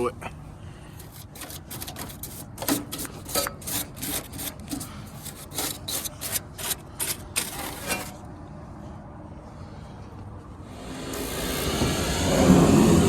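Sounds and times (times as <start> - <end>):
hand brush scrubbing: 1.0 - 8.2.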